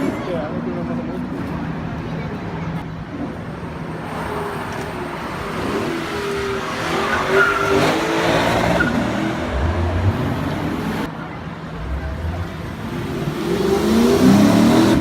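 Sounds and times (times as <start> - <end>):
car engine revving: 11.7 - 15.0.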